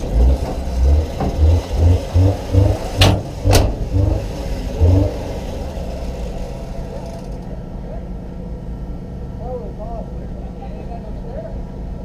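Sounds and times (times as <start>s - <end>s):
sharp bangs: 0.0s - 4.3s
race car engine revving: 0.0s - 7.6s.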